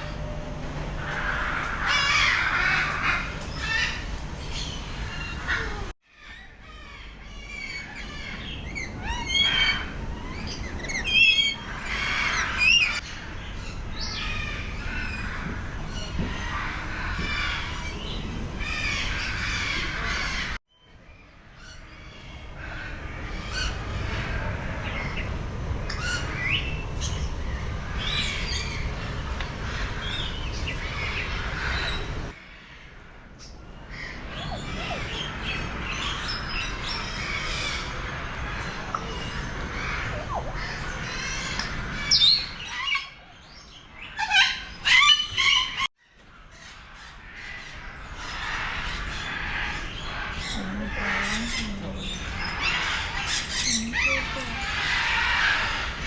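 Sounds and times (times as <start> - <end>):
birds chirping and calling: 0.0 - 56.0.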